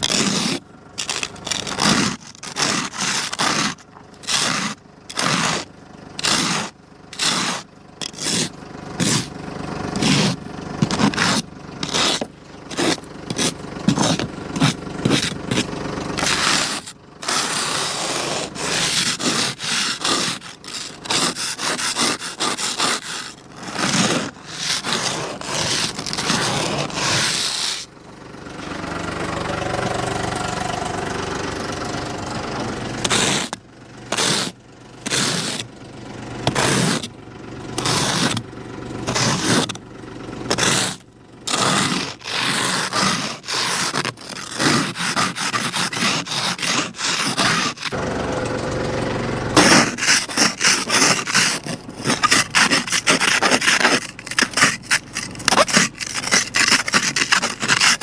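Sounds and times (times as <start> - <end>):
scraping strokes: 0.0 - 27.9, 33.0 - 35.7, 37.8 - 38.4, 40.5 - 48.0, 49.5 - 58.0.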